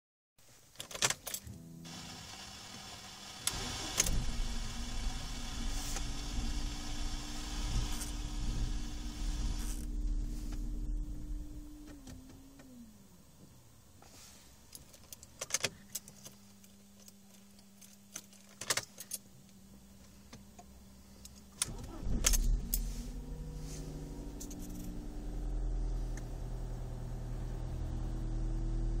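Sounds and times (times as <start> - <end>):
faint steady hum: 1.4 - 29.0
car engine starting and idling: 1.5 - 13.0, 21.0 - 29.0
car keys jingling: 24.3 - 25.0.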